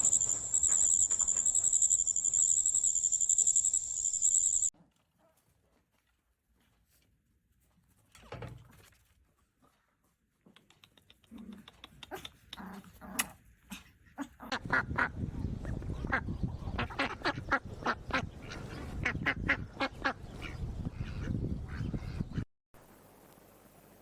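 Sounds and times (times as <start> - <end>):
ducks quacking: 16.0 - 22.4.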